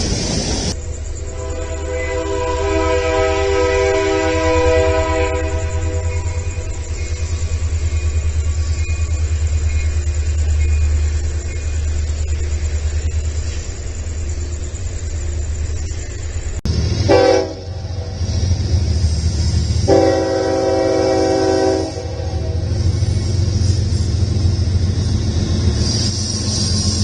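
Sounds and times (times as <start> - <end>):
diesel locomotive engine rumbling: 0.0 - 27.0
locomotive horn blast: 1.2 - 6.9, 17.0 - 18.6, 19.4 - 23.1.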